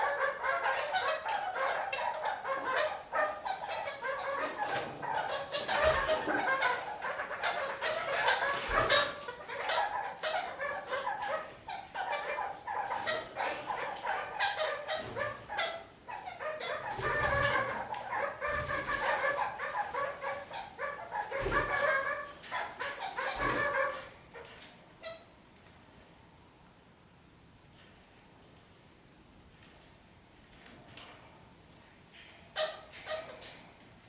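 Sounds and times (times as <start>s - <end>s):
parakeets chattering: 0.0s - 25.3s.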